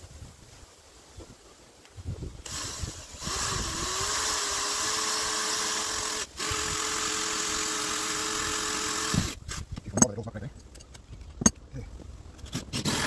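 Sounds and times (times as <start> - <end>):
electric drill running: 2.4 - 9.7.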